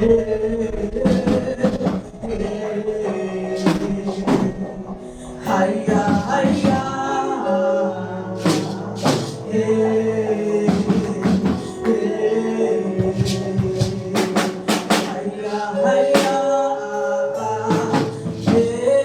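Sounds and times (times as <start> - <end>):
gospel praise music: 0.0 - 19.0
people singing: 0.0 - 19.0
drum and cymbal hits: 1.1 - 2.2, 3.4 - 7.1, 8.4 - 9.5, 10.6 - 12.1, 13.0 - 17.1, 17.7 - 19.0.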